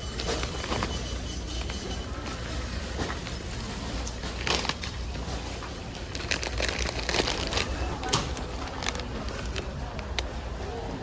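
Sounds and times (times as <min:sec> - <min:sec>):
goods and bags crinkling: 0:02.9 - 0:09.8.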